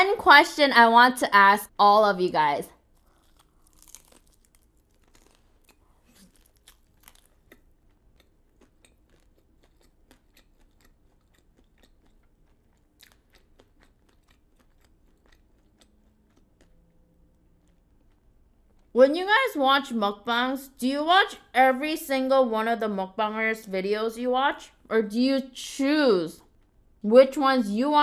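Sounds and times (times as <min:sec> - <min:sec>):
chewing crunchy fried food: 0:02.7 - 0:19.0, 0:26.4 - 0:27.0.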